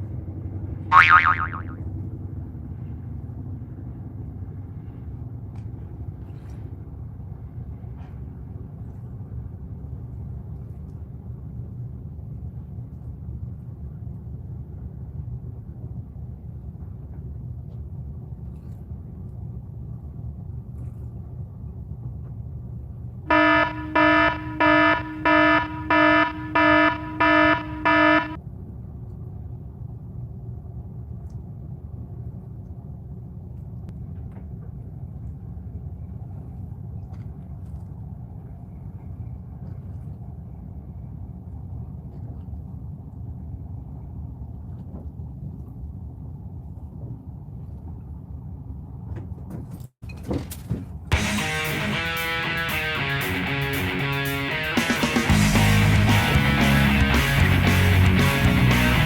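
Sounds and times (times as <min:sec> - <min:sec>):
boat engine rumble: 0:23.3 - 0:28.4, 0:55.2 - 0:59.0
electronic alarm beeps: 0:23.3 - 0:28.4.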